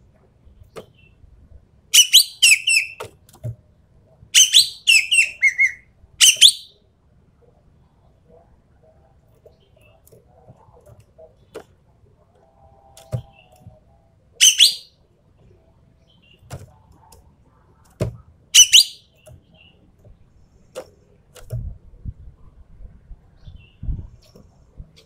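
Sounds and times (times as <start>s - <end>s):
harsh high bird calls: 2.0s - 3.0s, 4.4s - 6.7s, 14.4s - 14.9s, 18.6s - 19.1s.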